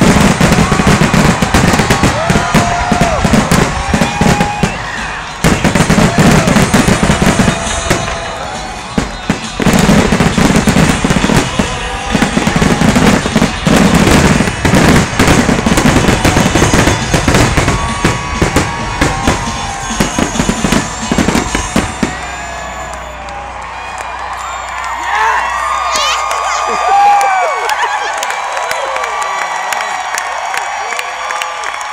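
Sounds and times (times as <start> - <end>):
fireworks booming and crackling: 0.0 - 23.1.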